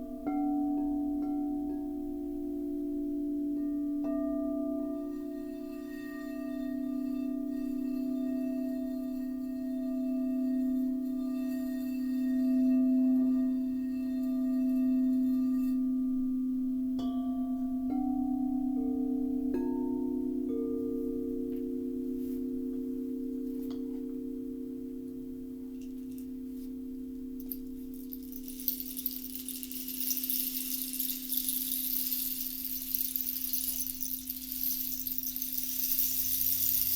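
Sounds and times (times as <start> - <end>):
singing bowls ringing: 3.5 - 16.4, 27.4 - 36.9
singing bowls being struck: 27.4 - 36.9.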